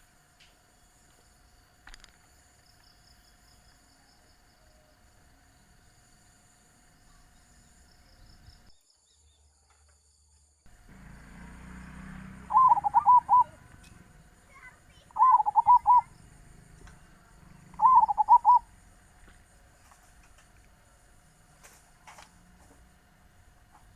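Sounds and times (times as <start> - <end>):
dove cooing: 12.1 - 18.8.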